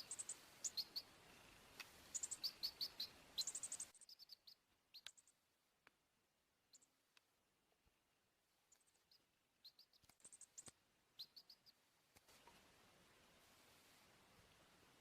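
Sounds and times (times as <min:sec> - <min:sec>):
baby chick peeping: 0:00.0 - 0:01.5, 0:02.1 - 0:05.2, 0:09.1 - 0:11.8
steady hiss: 0:00.0 - 0:04.0, 0:12.0 - 0:15.0
faint clicks: 0:01.7 - 0:02.0.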